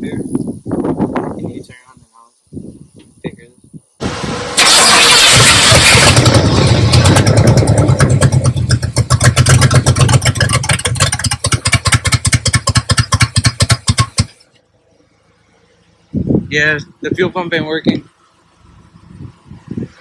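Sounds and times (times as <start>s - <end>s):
car engine stumbling and stalling: 4.0s - 14.4s.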